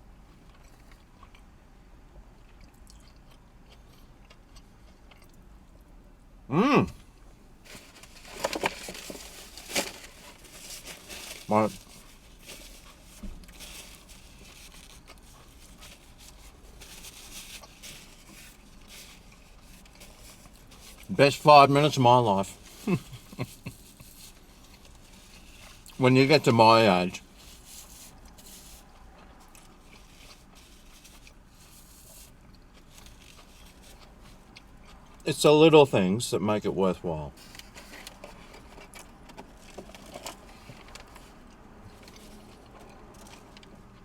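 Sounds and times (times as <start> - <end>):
man chewing food: 0.0 - 6.1, 7.0 - 21.1, 22.6 - 26.0, 27.2 - 35.2, 37.4 - 44.0
low background hum: 0.0 - 44.0
chewing and mouth noises: 0.2 - 6.0, 27.2 - 35.2.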